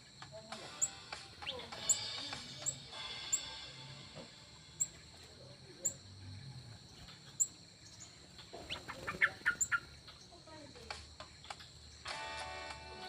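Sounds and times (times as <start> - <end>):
sharp bird calls: 0.0 - 10.4
birds chirping: 0.0 - 13.0.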